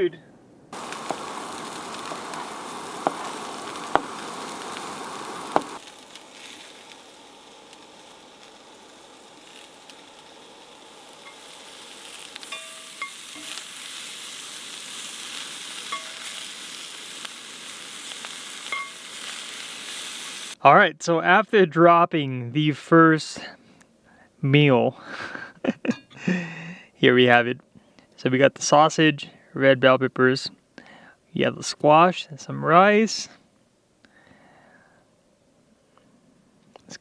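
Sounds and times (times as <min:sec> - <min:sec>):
food sizzling in a pan: 0:00.8 - 0:20.6.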